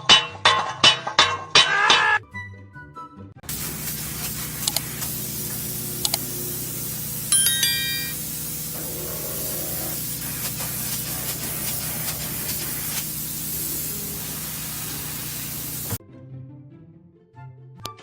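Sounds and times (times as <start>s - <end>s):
loud spraying hiss: 3.4s - 16.0s
scattered clicks: 4.6s - 5.0s, 6.0s - 6.3s.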